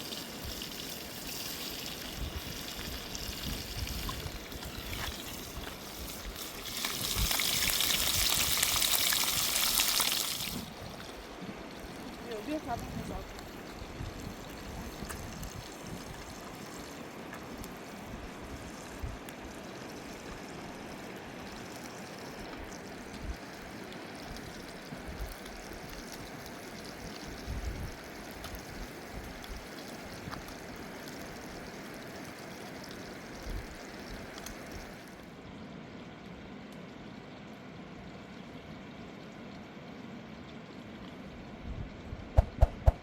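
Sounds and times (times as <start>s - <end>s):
short low thumps: 42.4s - 43.0s.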